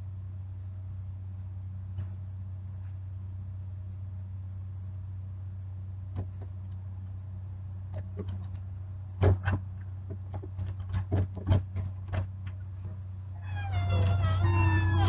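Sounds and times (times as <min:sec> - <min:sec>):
food truck engine hum: 0:13.0 - 0:15.0.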